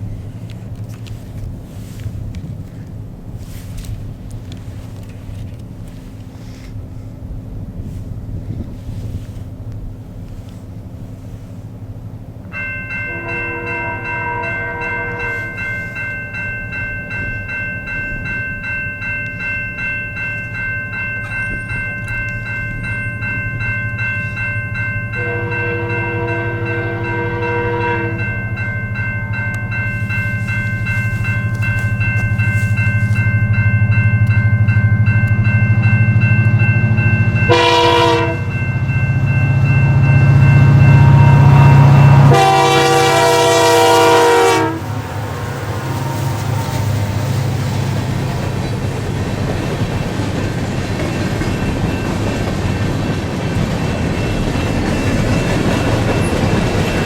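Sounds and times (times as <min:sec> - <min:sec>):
diesel locomotive engine rumbling: 0:00.0 - 0:57.0
crossing bell ringing: 0:12.4 - 0:57.0
locomotive air horn blasts: 0:13.1 - 0:15.8, 0:25.2 - 0:28.4, 0:37.5 - 0:38.6, 0:40.6 - 0:47.2.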